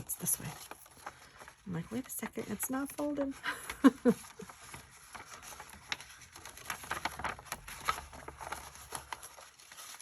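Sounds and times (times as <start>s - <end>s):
cardstock taps and rustles: 0.0s - 10.0s.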